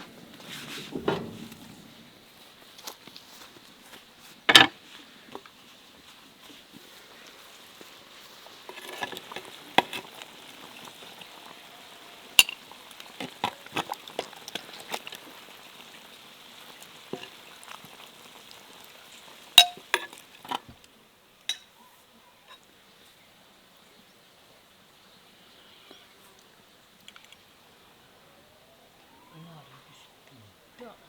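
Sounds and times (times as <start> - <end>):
kitchen utensils clinking: 0.0 - 2.1, 19.6 - 20.2
faint steady hiss: 0.0 - 31.0.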